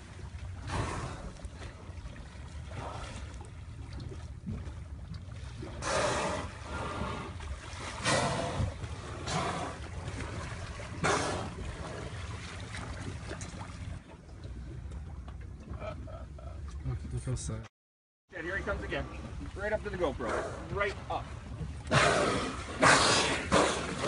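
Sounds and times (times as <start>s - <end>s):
water splashing around boat: 0.0s - 17.6s, 18.3s - 24.0s.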